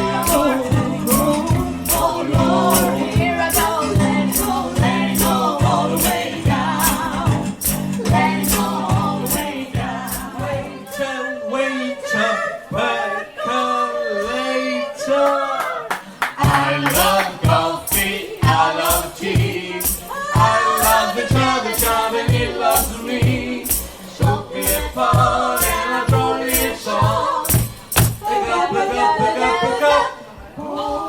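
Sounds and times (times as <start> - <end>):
bass line: 0.0 - 10.7
hand percussion: 0.0 - 10.8, 16.4 - 28.4
vocal trio singing in harmony: 0.0 - 31.0.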